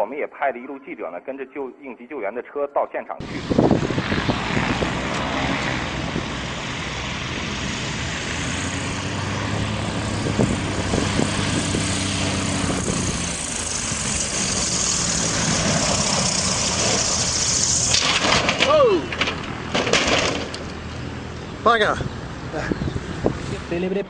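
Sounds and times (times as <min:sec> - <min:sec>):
loud rushing noise: 0:03.2 - 0:20.6
airplane engine running: 0:03.2 - 0:24.0.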